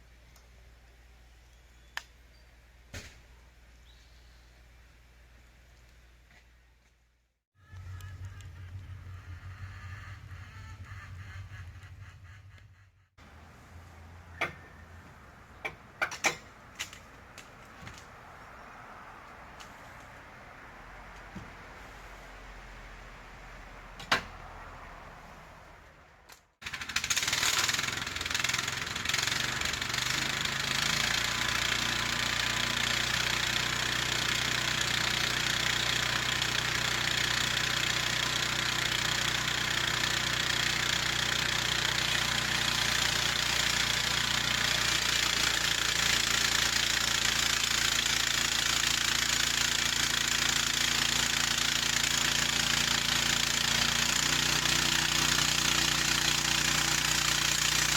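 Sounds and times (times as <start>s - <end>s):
gasoline engine running: 7.6s - 17.3s.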